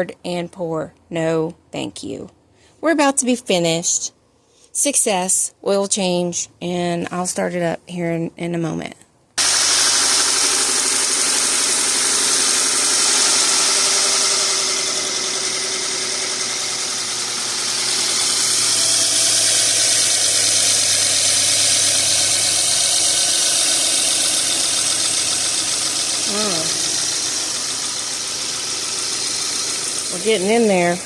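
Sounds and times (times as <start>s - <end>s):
car engine idling: 9.4s - 31.0s.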